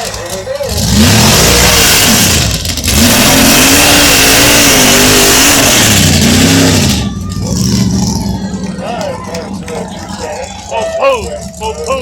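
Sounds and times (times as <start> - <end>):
racing engine at full throttle: 0.0 - 12.0.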